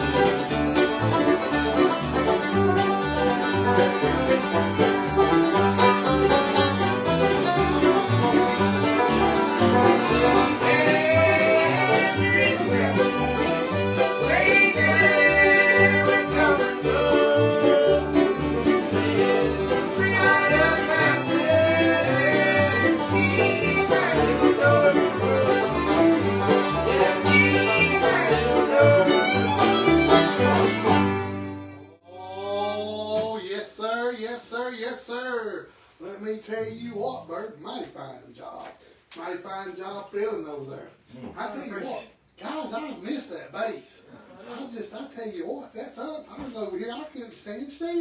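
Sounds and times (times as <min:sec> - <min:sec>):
bluegrass band jamming: 0:00.0 - 0:31.9
man talking: 0:32.1 - 0:48.0.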